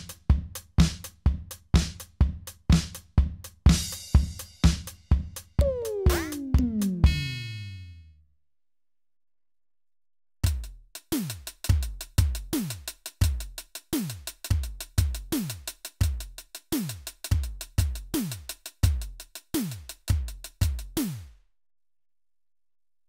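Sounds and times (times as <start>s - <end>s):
electronic snare and hi-hat hits: 5.6s - 7.4s, 10.4s - 21.3s.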